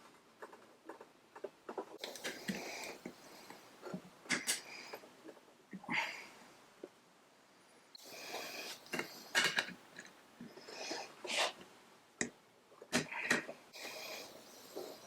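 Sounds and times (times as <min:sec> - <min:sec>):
hands scraping and rustling parts: 0:08.3 - 0:11.7.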